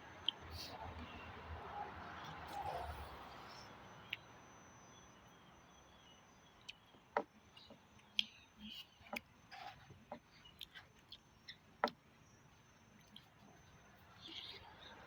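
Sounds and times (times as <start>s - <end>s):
soft eating noises: 0.1s - 4.4s, 6.4s - 15.0s.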